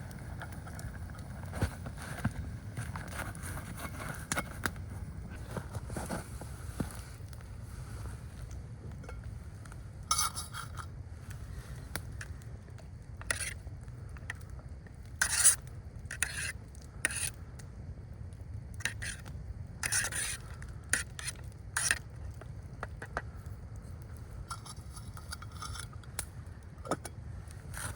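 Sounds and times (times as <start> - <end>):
utensil scraping metal pot: 10.1 - 10.9, 13.2 - 13.6, 15.2 - 17.4, 18.8 - 22.1, 24.5 - 26.2, 27.7 - 27.9.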